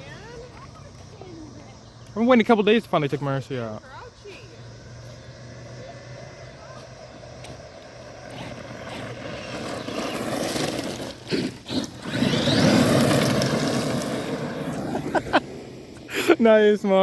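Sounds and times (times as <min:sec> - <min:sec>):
radio-controlled car motor whine: 0:07.2 - 0:15.2.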